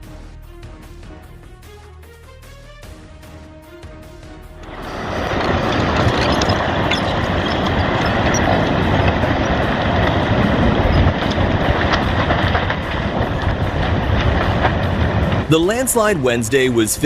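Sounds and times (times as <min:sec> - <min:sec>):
landslide rumbling: 0:04.6 - 0:17.0.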